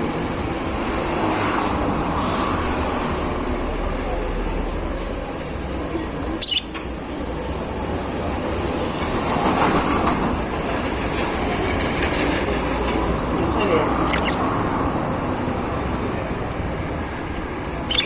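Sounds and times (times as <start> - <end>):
budgerigars chattering and warbling: 6.4 - 6.8, 13.4 - 14.6, 17.8 - 18.0.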